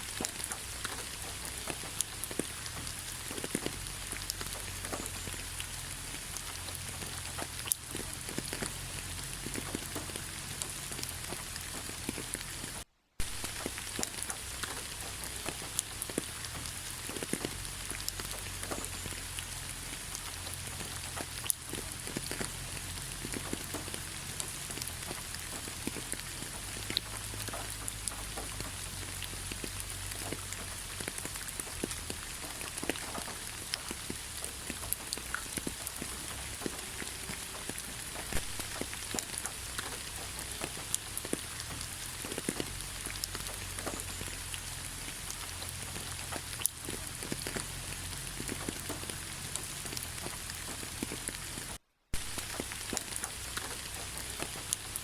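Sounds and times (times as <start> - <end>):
rain hiss: 0.0 - 55.0
raindrops pattering: 0.0 - 55.0.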